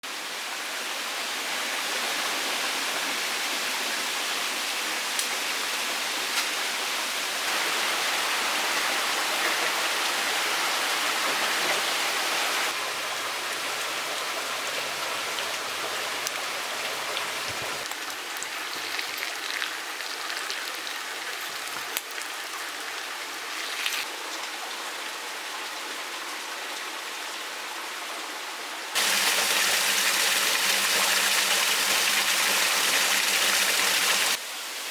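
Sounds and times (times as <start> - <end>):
stream water rushing: 7.4 - 24.2, 29.0 - 34.9.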